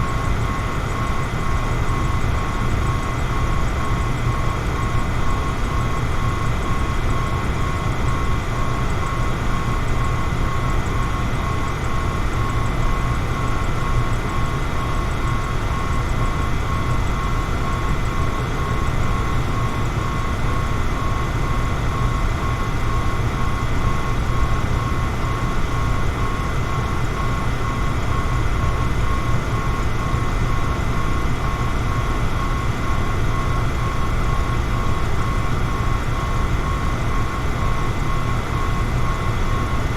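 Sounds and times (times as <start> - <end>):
electric fan running: 13.6 - 39.9.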